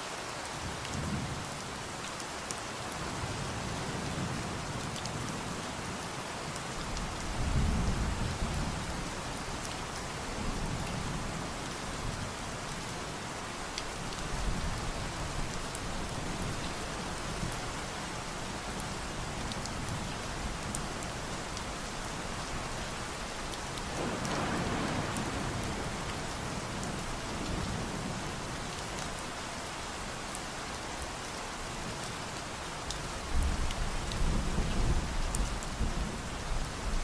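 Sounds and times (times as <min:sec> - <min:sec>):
steady rain falling: 0:00.0 - 0:37.0
distant thunder rolling: 0:23.9 - 0:27.9.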